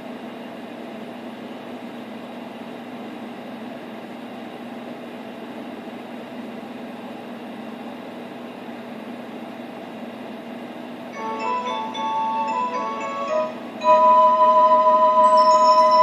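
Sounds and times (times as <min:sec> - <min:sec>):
mallet percussion music: 0:11.2 - 0:16.0
tape hiss and hum: 0:11.2 - 0:16.0.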